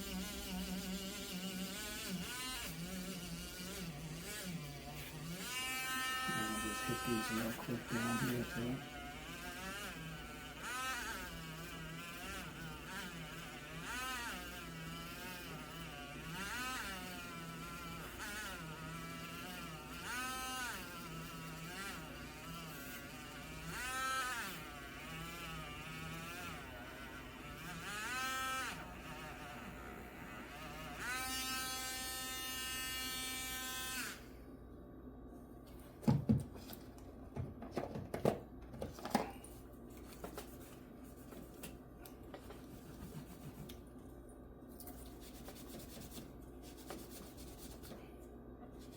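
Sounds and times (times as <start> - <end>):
power tool motor buzzing: 0.0 - 34.3.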